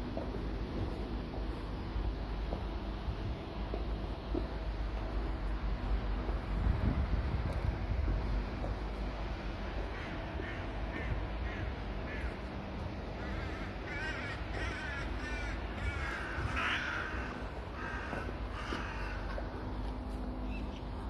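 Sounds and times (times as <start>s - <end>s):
low steady rumble: 0.0s - 21.0s
birds calling: 13.1s - 21.0s.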